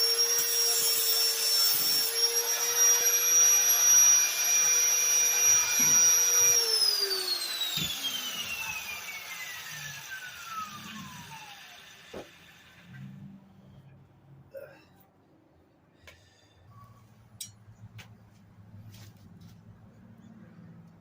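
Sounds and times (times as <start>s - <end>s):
power tool motor whining: 0.0s - 13.2s.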